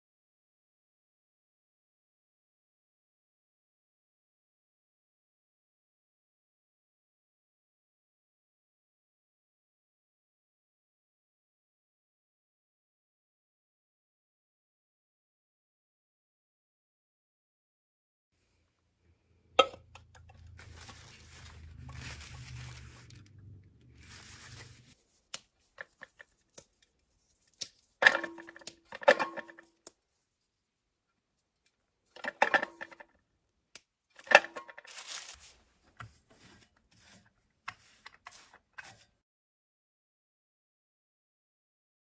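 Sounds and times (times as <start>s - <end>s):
household objects clicking and knocking: 19.6s - 30.0s, 32.1s - 33.0s, 34.2s - 37.1s
rustling: 20.2s - 29.8s, 34.2s - 37.2s.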